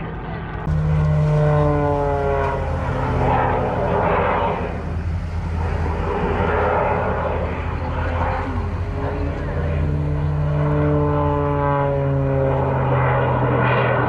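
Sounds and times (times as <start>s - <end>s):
low engine hum: 0.0s - 14.0s
propeller aircraft flying past: 0.0s - 14.0s.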